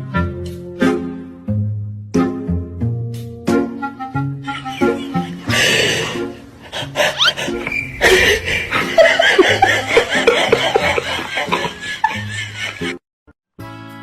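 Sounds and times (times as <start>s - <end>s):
background music: 0.0s - 13.0s
people laughing: 4.5s - 13.0s.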